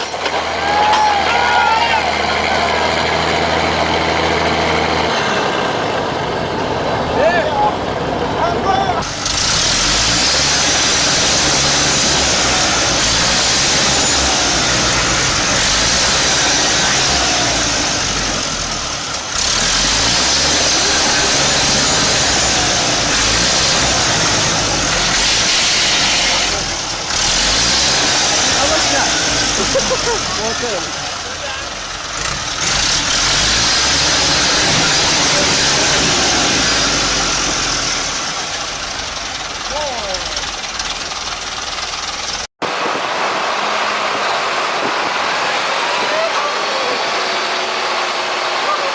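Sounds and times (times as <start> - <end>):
heavy machine engine running: 0.0 - 48.9
loud even hiss: 19.8 - 29.6.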